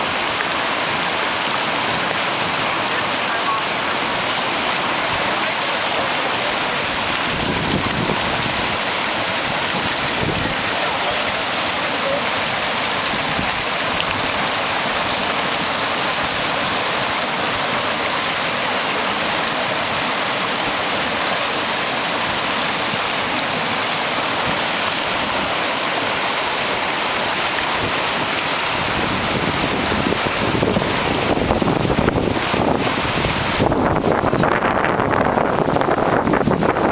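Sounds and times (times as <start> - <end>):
river rushing over rocks: 0.0 - 36.9
wind buffeting microphone: 6.9 - 10.9, 12.4 - 16.5, 27.7 - 36.9.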